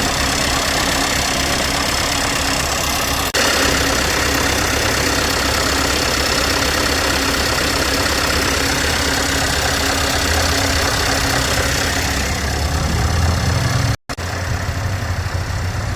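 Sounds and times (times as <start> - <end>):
diesel truck engine idling: 0.0 - 15.9.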